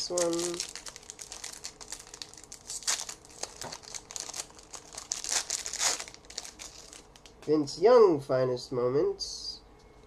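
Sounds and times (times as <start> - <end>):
card pack wrapper tearing: 0.0 - 7.3.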